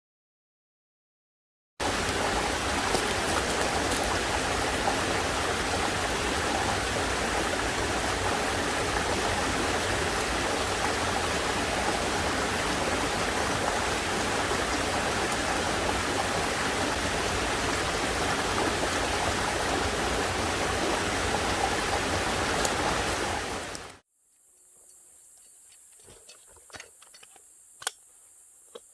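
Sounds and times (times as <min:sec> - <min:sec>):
heavy rain falling: 0:01.8 - 0:24.0.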